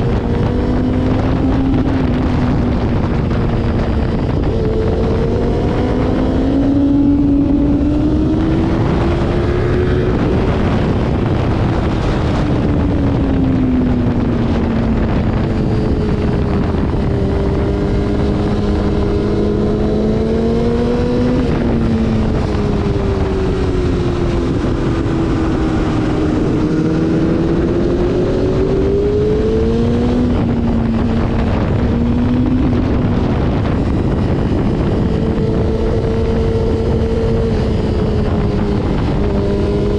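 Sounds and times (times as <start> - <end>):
motorcycle engine at speed: 0.0 - 39.9
wind rush on microphone: 0.0 - 39.9.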